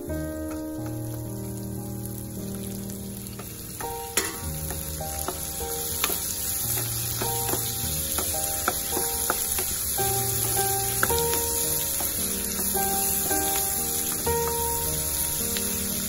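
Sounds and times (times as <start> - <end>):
food sizzling in oil: 0.0 - 16.0
soft background music: 0.0 - 16.0
spatula clicking against pan: 3.4 - 13.4.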